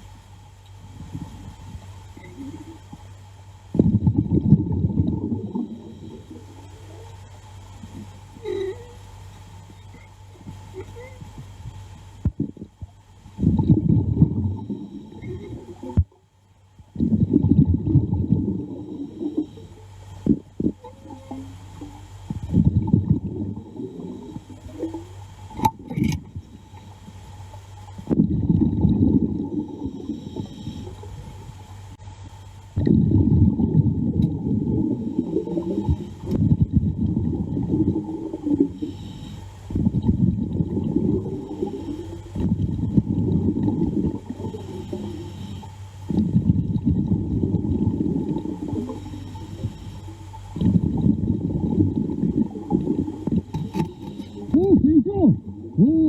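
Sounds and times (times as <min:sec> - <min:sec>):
steady low hum: 0:00.0 - 0:56.0
underwater breath bubbling: 0:03.7 - 0:09.0, 0:09.6 - 0:16.2, 0:16.9 - 0:27.4, 0:28.0 - 0:31.8, 0:32.8 - 0:55.9.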